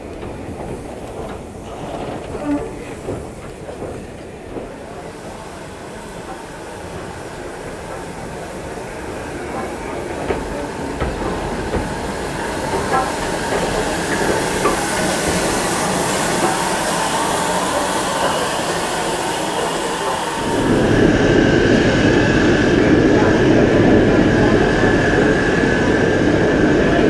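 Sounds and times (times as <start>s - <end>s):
steam locomotive approaching: 0.0s - 27.0s
steam hiss: 5.1s - 26.4s.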